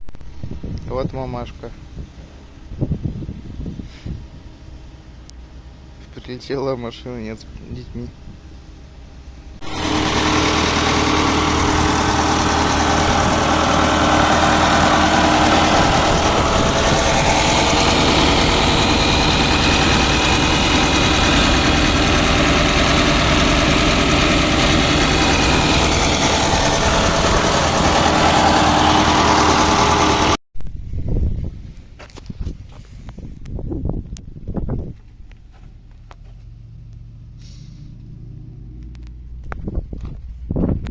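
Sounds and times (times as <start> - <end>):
vehicle engine idling: 8.2 - 30.4.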